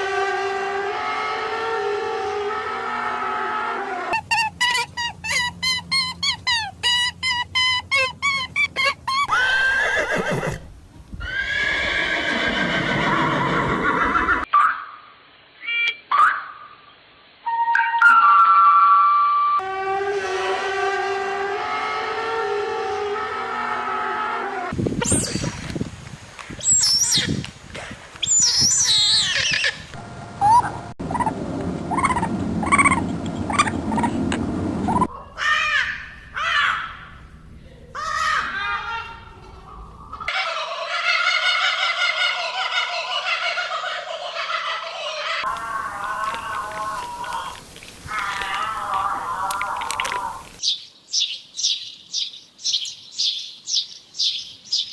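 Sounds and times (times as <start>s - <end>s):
horse whinnying: 9.3s - 14.5s
birds calling harshly: 26.6s - 27.4s, 28.2s - 30.0s, 39.7s - 54.9s.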